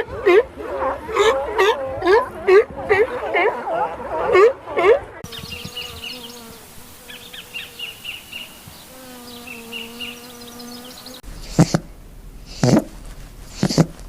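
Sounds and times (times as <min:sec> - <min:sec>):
buzzing insect hum: 0:05.2 - 0:14.0
small birds chirping: 0:05.2 - 0:14.0.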